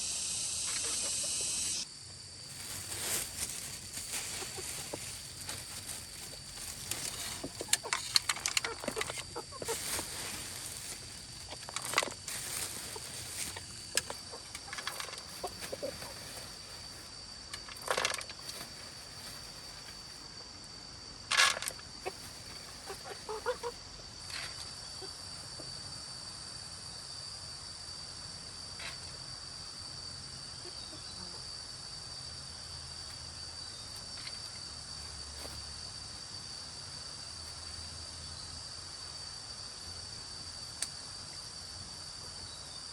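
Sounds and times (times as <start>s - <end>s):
high-pitched insect drone: 0.0s - 20.4s
chickens clucking: 0.6s - 1.8s, 2.5s - 17.1s, 22.0s - 23.8s.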